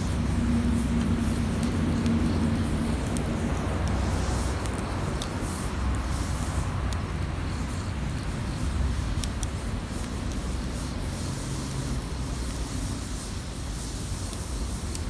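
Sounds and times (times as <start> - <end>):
campfire crackling and popping: 0.0 - 15.0
fire low rumble: 0.0 - 15.0.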